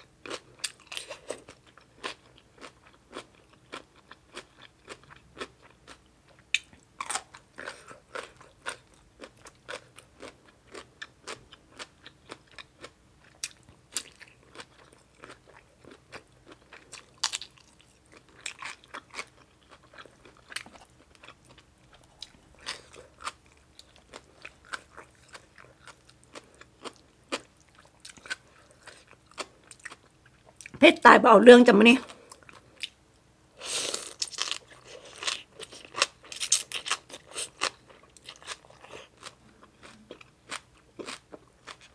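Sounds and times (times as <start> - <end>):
crisp chewing crunches: 33.6 - 41.9.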